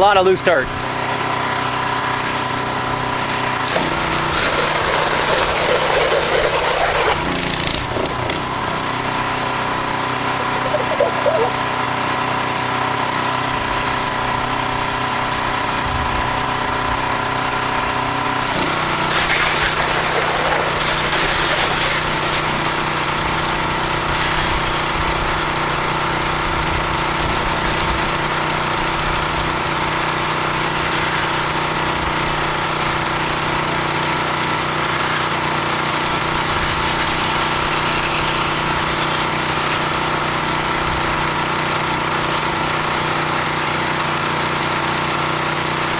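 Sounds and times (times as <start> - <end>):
pressure washer engine running: 0.0 - 45.9
water spray hissing: 3.6 - 7.2, 18.4 - 24.6.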